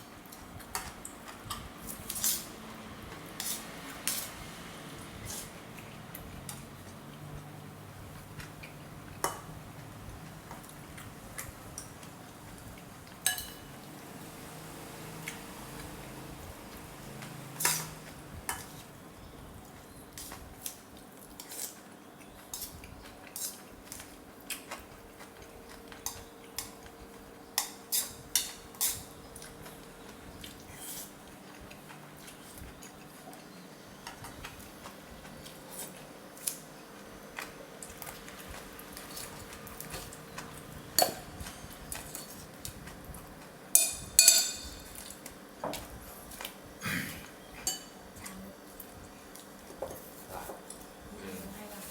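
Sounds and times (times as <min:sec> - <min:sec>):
cutlery clinking against bowl: 0:13.1 - 0:13.8, 0:17.6 - 0:18.8, 0:22.4 - 0:24.8, 0:27.6 - 0:29.8, 0:40.9 - 0:42.4, 0:43.7 - 0:45.9, 0:47.6 - 0:48.0.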